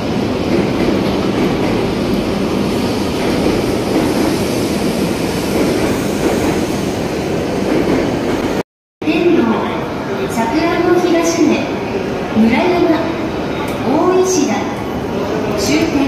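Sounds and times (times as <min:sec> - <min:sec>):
train rumbling: 0:00.0 - 0:08.6.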